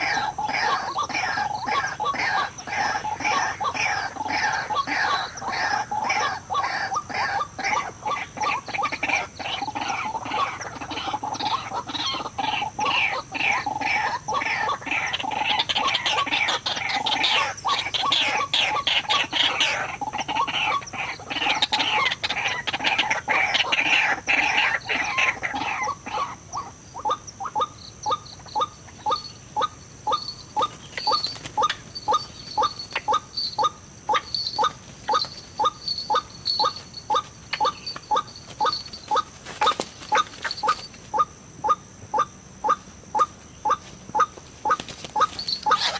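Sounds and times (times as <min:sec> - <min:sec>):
waterhen calls: 0:00.0 - 0:45.9.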